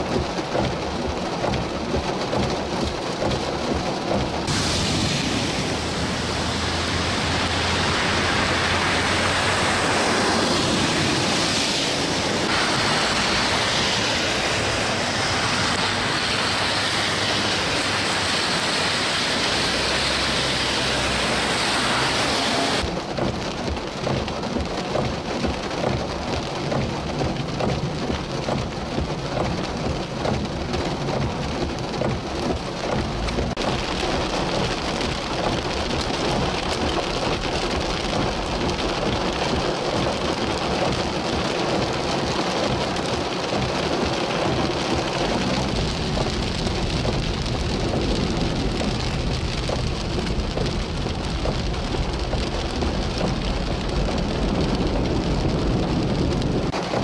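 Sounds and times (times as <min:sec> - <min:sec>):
car tyres splashing through water: 0:00.0 - 0:57.0
heavy rain pouring: 0:00.0 - 0:57.0.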